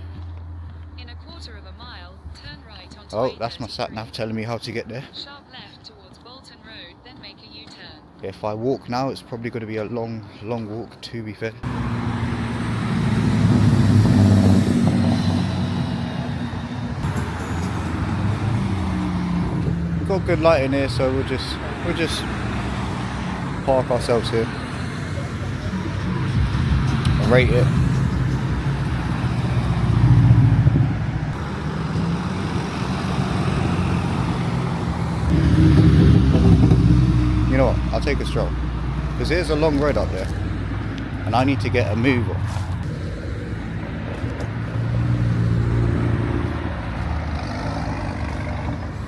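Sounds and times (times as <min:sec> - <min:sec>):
road traffic noise: 0:00.0 - 0:49.0
car driving past: 0:11.6 - 0:49.0.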